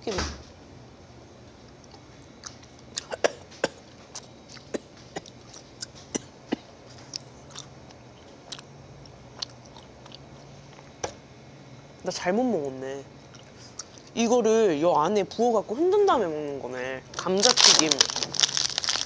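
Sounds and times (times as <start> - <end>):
wet chewing mouth clicks: 9.4 - 10.9.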